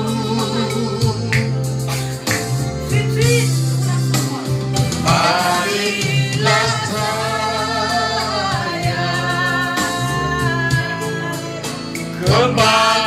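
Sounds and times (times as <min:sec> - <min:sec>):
voices singing together: 0:00.0 - 0:03.5, 0:04.4 - 0:13.0.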